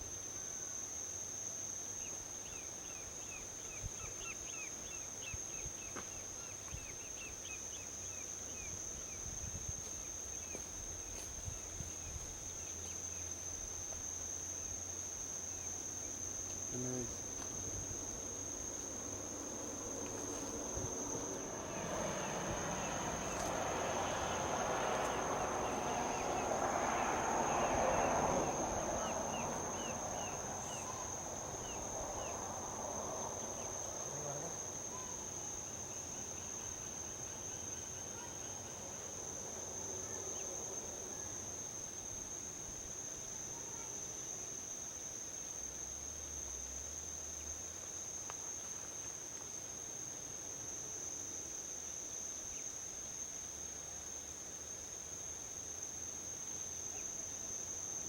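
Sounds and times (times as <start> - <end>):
high-pitched insect chorus: 0.0 - 58.0
vehicle passing on highway: 17.4 - 37.5.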